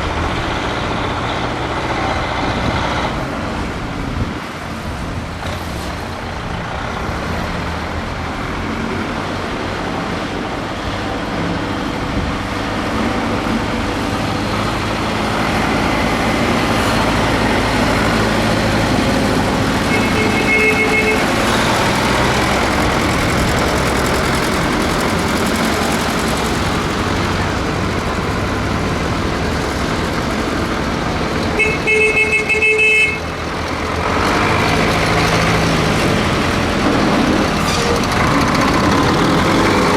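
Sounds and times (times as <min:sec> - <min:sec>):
tractor engines running: 0:00.0 - 0:39.9
horn tooting: 0:19.2 - 0:23.7, 0:31.6 - 0:33.4.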